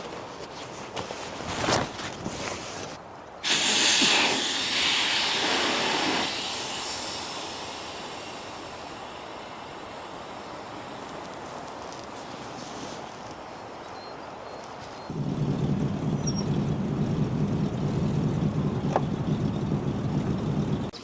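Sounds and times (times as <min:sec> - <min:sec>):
rain hiss: 0:03.4 - 0:13.8, 0:15.1 - 0:20.9.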